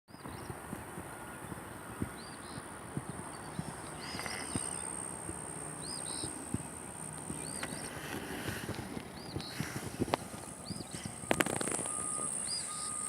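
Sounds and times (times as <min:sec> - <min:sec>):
bird chirping: 0:00.1 - 0:13.0
high-pitched whine: 0:00.1 - 0:13.0.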